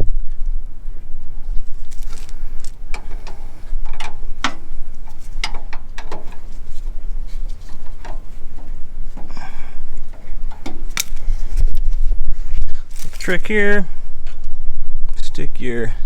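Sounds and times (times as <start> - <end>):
steady low rumble: 0.0 - 16.0
hand tools clicking and clinking: 2.1 - 11.4.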